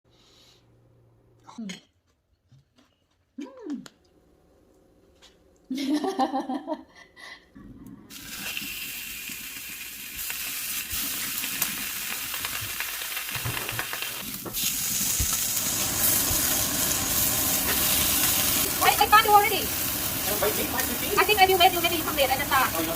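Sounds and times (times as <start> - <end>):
food sizzling in hot fat: 8.1 - 22.9.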